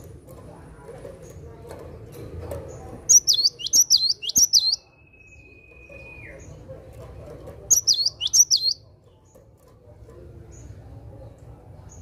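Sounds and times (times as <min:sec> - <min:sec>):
thin held bird whistle: 0:03.1 - 0:06.4
bird singing whistled notes: 0:03.1 - 0:06.6, 0:07.7 - 0:08.8.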